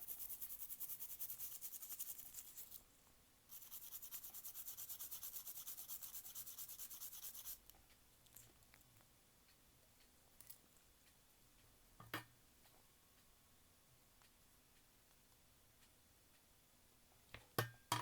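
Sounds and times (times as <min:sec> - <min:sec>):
brush scrubbing circuit board: 0:00.0 - 0:02.8, 0:03.5 - 0:07.6.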